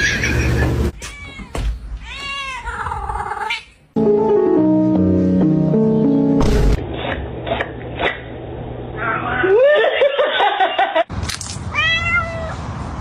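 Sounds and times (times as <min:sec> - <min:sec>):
cat meowing: 0:00.9 - 0:03.8, 0:11.7 - 0:12.6.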